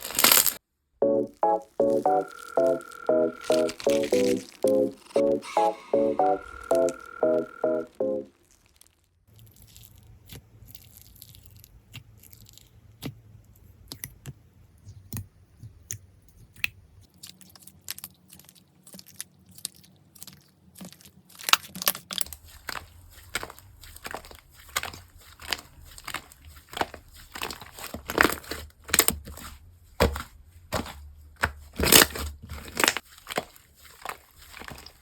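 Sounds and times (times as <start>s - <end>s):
slime clicking and crackling: 0.0s - 0.6s.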